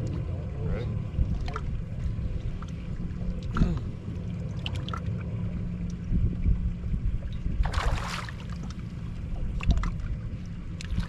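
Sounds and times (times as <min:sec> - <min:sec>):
boat motor humming: 0:00.0 - 0:11.0
water splash: 0:07.6 - 0:10.1.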